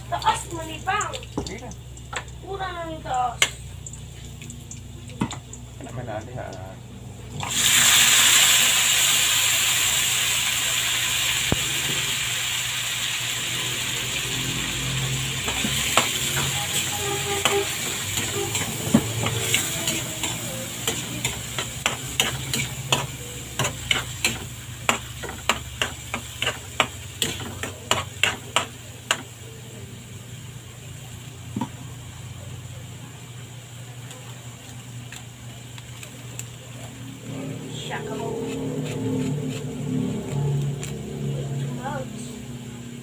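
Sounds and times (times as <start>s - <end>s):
meat sizzling in hot oil: 0.0s - 32.6s
metal spatula scraping a wok: 15.4s - 29.2s, 37.8s - 39.8s.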